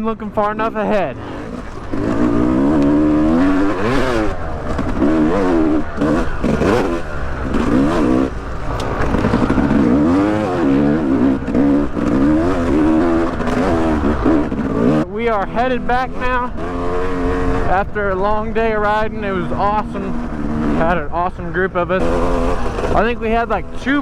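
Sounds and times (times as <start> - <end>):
dirt bike engine revving: 0.0 - 24.0
knocks and clatters: 1.5 - 15.0.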